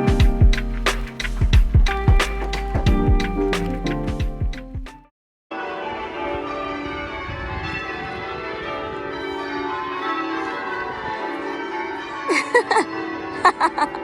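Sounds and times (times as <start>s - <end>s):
church bells ringing: 5.5s - 14.0s.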